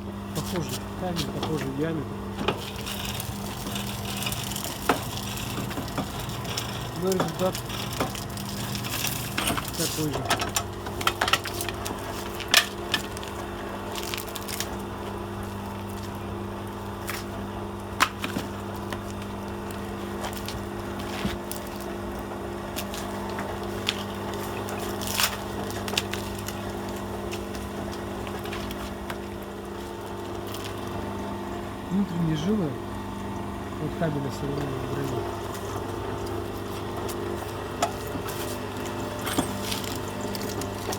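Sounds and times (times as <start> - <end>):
electric motor humming: 0.0 - 40.9.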